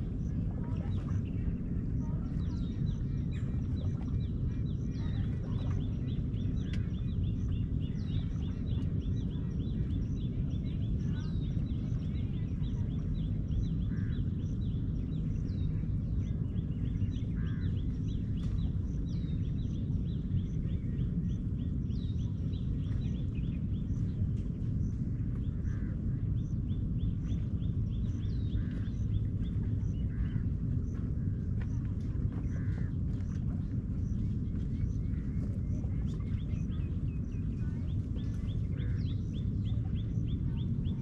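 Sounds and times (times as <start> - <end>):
birds chirping: 0.0 - 41.0
steady low rumble: 0.0 - 41.0.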